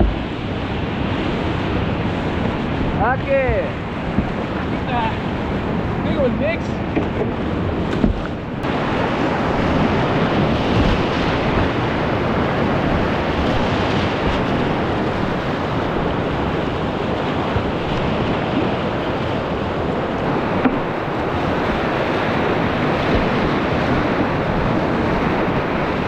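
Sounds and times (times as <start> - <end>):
river rapids rushing: 0.0 - 26.0.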